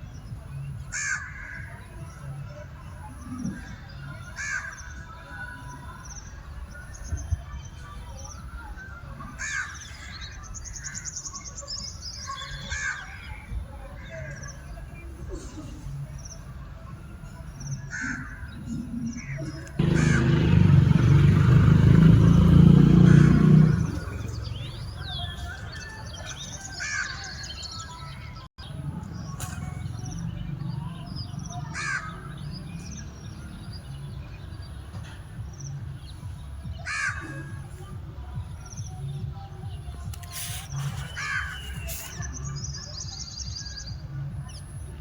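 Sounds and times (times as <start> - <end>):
peacock calls: 19.4 - 27.5
loud low rumbling: 19.8 - 24.9.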